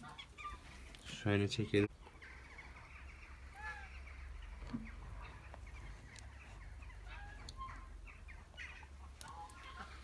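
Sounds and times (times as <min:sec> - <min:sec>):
faint bird chirps: 0:02.2 - 0:10.0.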